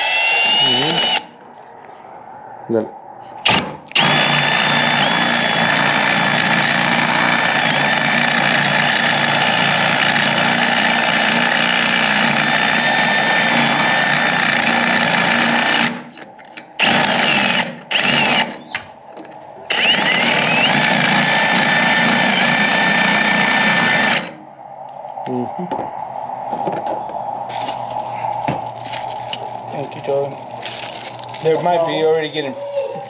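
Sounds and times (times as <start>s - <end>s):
electric drill whining: 0.0s - 1.3s, 3.4s - 16.1s, 16.8s - 18.8s, 19.7s - 24.4s.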